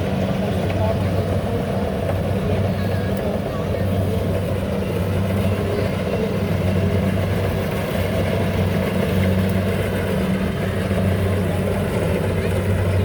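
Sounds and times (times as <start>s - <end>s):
combine harvester engine humming: 0.0s - 13.0s.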